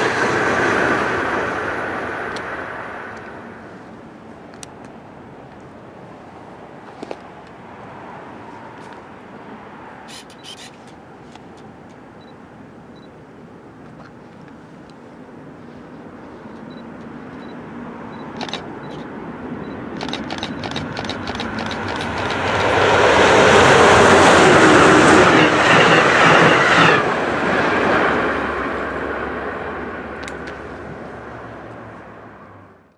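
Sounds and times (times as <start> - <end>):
passenger train rumbling by: 0.0 - 13.8, 14.6 - 32.9
sharp clicks on rails: 18.2 - 19.1, 19.7 - 23.8, 30.2 - 31.8.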